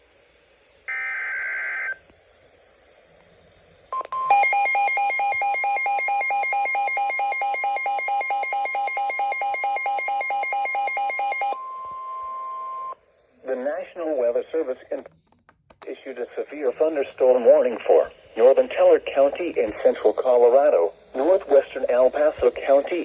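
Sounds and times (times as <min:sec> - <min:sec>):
steady warning alarm tone: 0:04.2 - 0:13.0.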